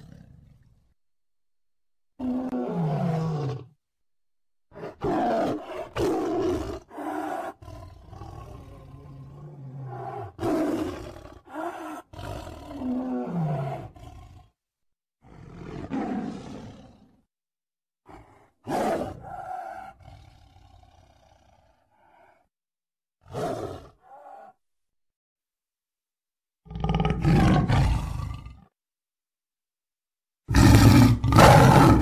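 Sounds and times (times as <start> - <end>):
tiger roaring and growling: 0.0 - 0.9, 2.2 - 3.8, 4.7 - 14.6, 15.2 - 17.2, 18.1 - 22.5, 23.2 - 24.7, 26.7 - 28.7, 30.5 - 32.0.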